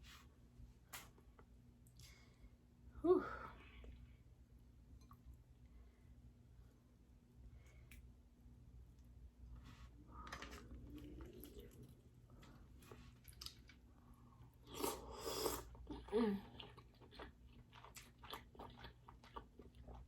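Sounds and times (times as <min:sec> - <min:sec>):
person chewing wetly: 0:10.4 - 0:20.0.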